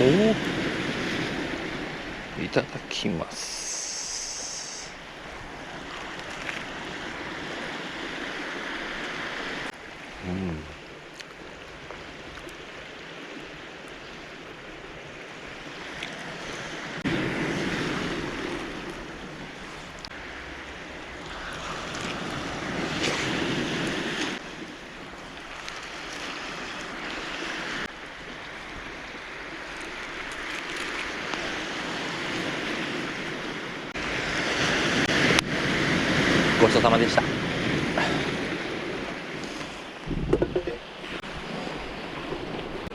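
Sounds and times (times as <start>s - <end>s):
waves breaking on cobble shore: 0.0s - 42.9s
wind on microphone: 31.0s - 42.9s.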